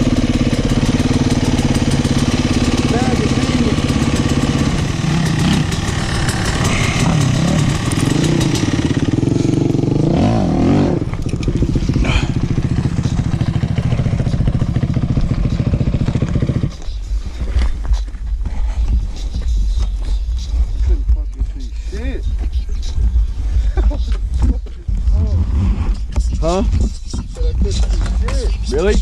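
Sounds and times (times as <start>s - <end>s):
dirt bike engine revving: 0.0s - 17.4s.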